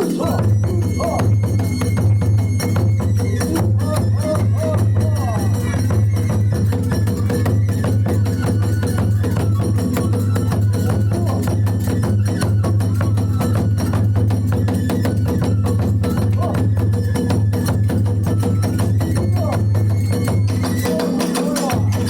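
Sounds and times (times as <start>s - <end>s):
small hand cymbals: 0.0s - 22.0s
taiko drum beat: 0.0s - 22.0s.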